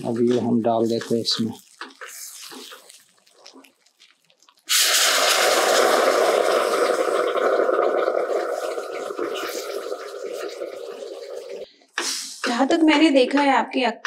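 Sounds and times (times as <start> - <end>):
loud sizzle in hot oil: 1.4 - 11.6.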